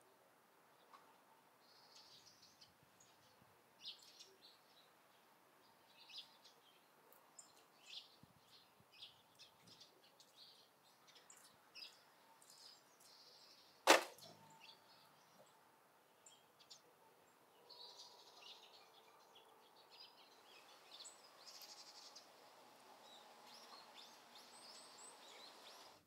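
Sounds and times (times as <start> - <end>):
faint bird chirps: 5.6 - 22.3.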